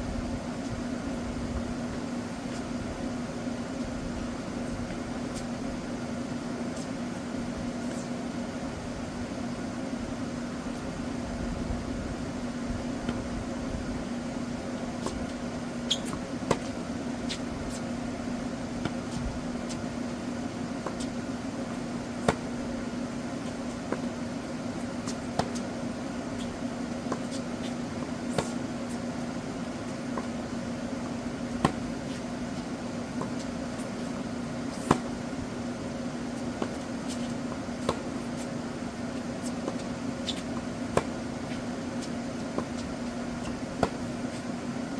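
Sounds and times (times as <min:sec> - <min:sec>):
steady mechanical hum: 0:00.0 - 0:44.9
tennis balls being struck: 0:14.8 - 0:44.5.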